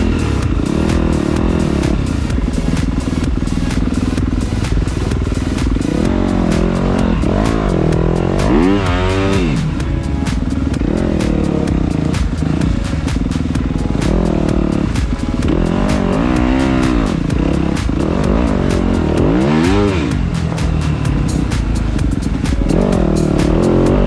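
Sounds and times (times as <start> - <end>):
dirt bike engine revving: 3.2 - 9.8, 15.5 - 21.0.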